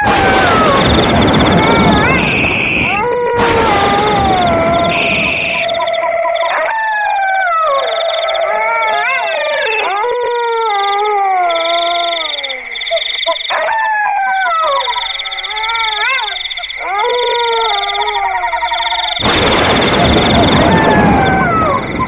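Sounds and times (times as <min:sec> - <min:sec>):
wolf howls: 0:00.0 - 0:19.2, 0:19.8 - 0:22.0.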